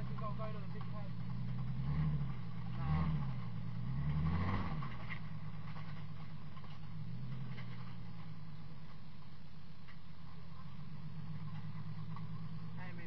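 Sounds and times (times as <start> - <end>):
car engine revving and running: 0.0 - 13.0.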